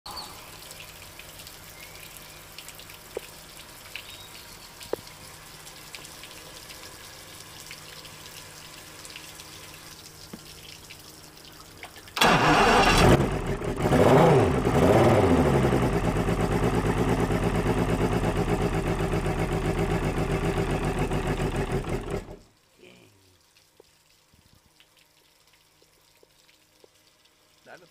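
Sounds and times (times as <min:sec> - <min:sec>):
starter cranking engine: 0:12.2 - 0:22.4.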